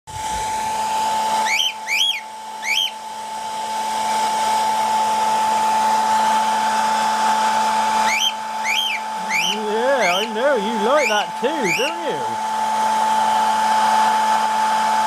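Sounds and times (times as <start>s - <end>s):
cockatiel chirps: 1.4s - 3.0s, 8.0s - 10.3s, 11.0s - 12.0s.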